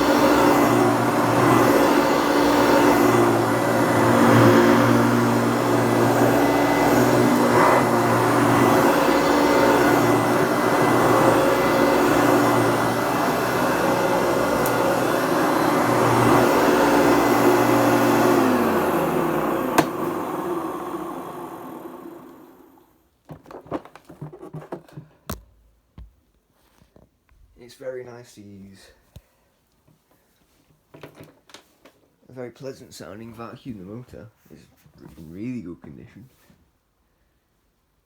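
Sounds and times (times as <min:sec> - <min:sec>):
vacuum cleaner running: 0:00.0 - 0:23.0
vacuum switch click: 0:19.7 - 0:20.1.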